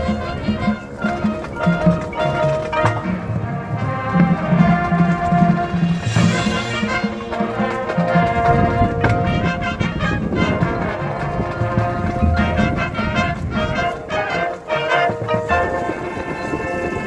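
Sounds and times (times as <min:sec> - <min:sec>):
marching band brass chords: 0:00.0 - 0:17.0
sharp percussion hit: 0:05.2 - 0:10.8.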